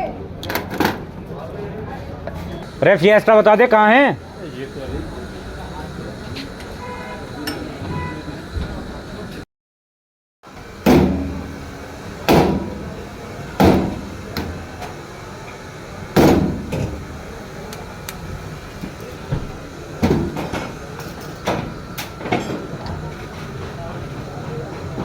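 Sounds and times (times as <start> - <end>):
hammer striking metal: 10.9 - 13.0.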